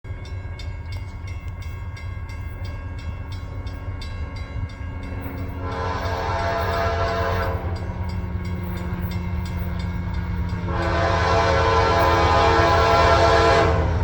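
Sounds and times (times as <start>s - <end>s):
locomotive rumble: 0.0s - 14.0s
locomotive air horn: 5.6s - 7.8s, 10.6s - 14.0s.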